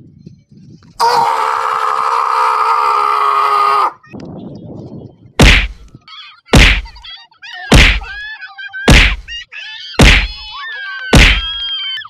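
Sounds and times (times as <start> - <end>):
heavy punches: 5.4 - 5.8, 6.6 - 7.0, 7.7 - 8.1, 8.9 - 9.3, 10.0 - 10.4, 11.1 - 11.5.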